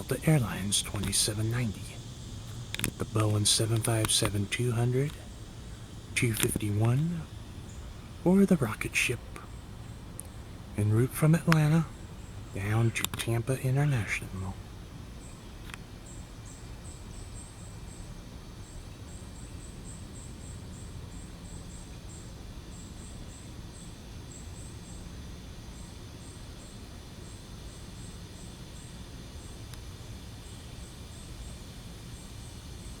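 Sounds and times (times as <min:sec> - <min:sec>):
low background rumble: 0:00.0 - 0:17.0
insect chirping: 0:00.0 - 0:33.0.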